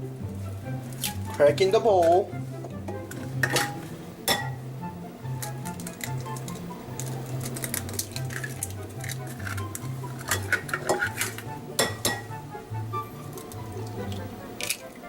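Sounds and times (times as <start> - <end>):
soft background music: 0.0 - 15.0
eggshells tapping on bowl rim: 5.4 - 12.4.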